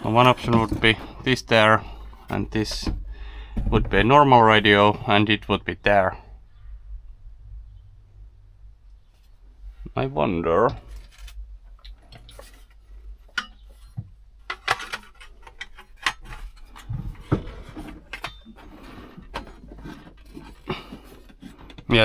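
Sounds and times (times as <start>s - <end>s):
handling clicks and knocks: 0.0s - 4.1s, 10.7s - 22.0s.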